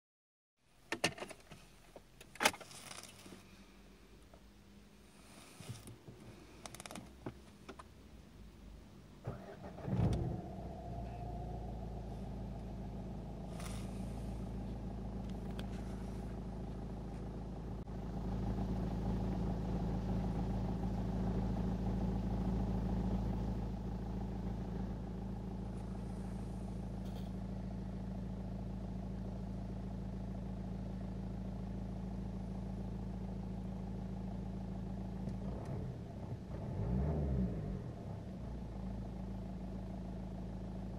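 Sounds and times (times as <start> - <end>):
diesel engine cranking and catching: 5.7 - 7.9, 9.2 - 11.4
diesel engine idling: 8.1 - 35.2.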